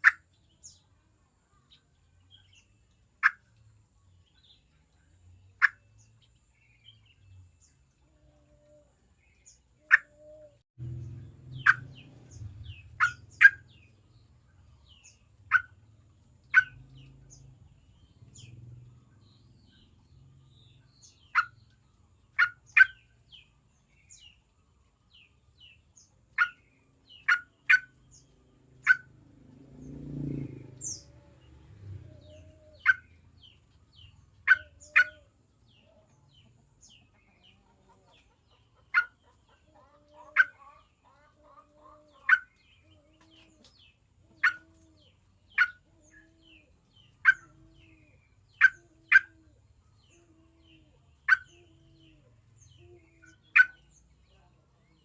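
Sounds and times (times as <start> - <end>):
bird chirping sharply: 9.4 - 15.8, 43.8 - 54.0.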